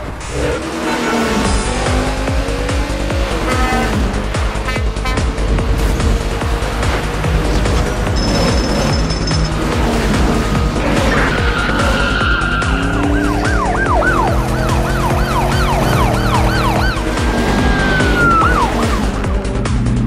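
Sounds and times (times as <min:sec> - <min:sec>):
police siren: 0:11.0 - 0:19.4.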